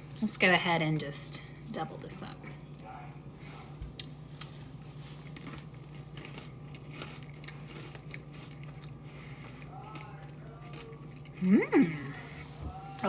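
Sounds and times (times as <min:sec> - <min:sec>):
steady low hum: 0:00.0 - 0:13.0
crackers crunching: 0:03.9 - 0:13.0.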